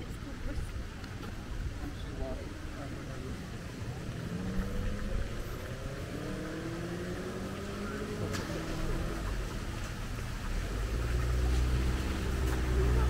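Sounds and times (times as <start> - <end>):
low traffic rumble: 0.0 - 13.0
car engine accelerating: 2.7 - 13.0.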